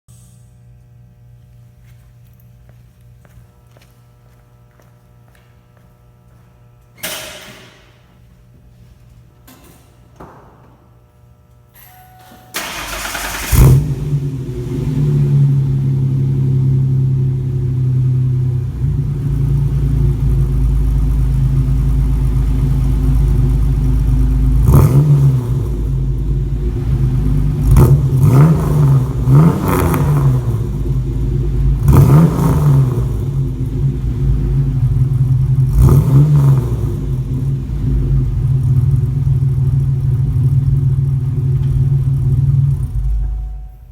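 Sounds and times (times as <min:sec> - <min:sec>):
car engine starting: 0:12.5 - 0:43.9
car engine revving: 0:12.6 - 0:43.6
car engine idling: 0:12.6 - 0:43.9.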